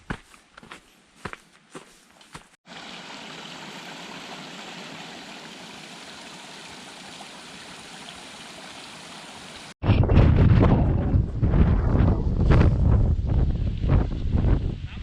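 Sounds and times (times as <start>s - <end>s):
footsteps on trail: 0.0s - 2.6s
water rushing: 2.6s - 9.8s.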